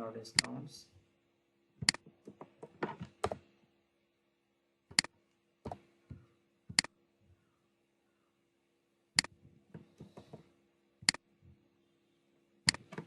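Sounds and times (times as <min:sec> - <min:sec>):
faint steady hum: 0:00.0 - 0:13.0
mouse clicks: 0:00.3 - 0:00.6, 0:01.8 - 0:02.1, 0:04.9 - 0:05.1, 0:06.7 - 0:07.0, 0:11.0 - 0:11.2, 0:12.7 - 0:13.0.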